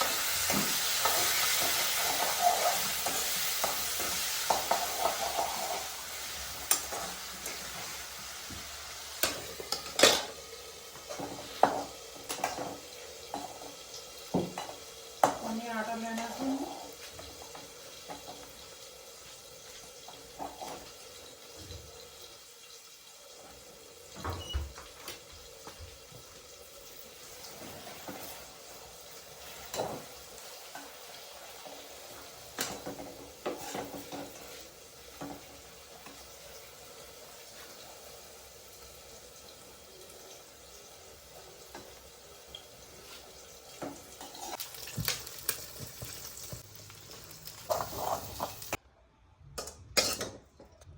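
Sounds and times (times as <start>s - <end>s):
utensils and dishes clinking: 9.2s - 10.4s, 49.6s - 50.8s.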